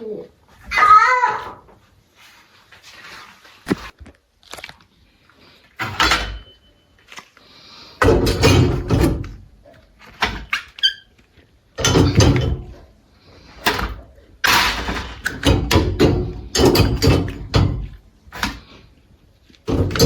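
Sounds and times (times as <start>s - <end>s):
knocks and thuds: 8.0s - 9.5s, 11.8s - 12.8s, 13.6s - 18.7s, 19.7s - 20.0s.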